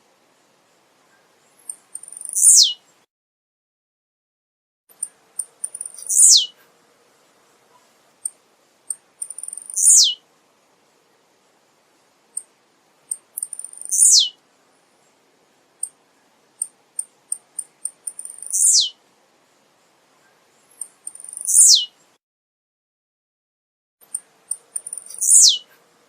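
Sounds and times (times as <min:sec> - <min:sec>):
sharp high ticks: 0:01.7 - 0:02.4, 0:05.0 - 0:06.2, 0:08.2 - 0:09.9, 0:13.1 - 0:14.0, 0:16.6 - 0:18.6, 0:20.8 - 0:21.5, 0:24.0 - 0:25.3
bird song sliding down: 0:05.7 - 0:06.5, 0:09.4 - 0:10.2, 0:13.6 - 0:14.3, 0:18.2 - 0:18.9, 0:24.8 - 0:25.6.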